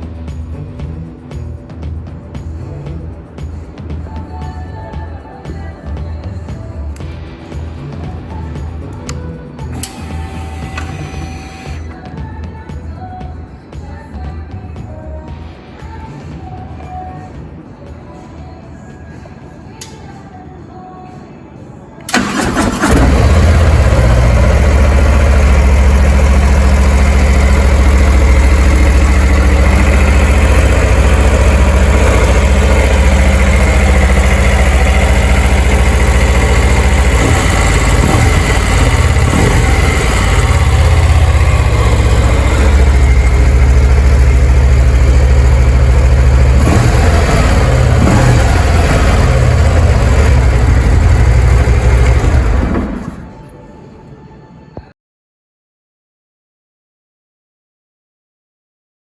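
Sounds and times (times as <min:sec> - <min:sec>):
motorcycle engine idling: 0:22.1 - 0:53.1.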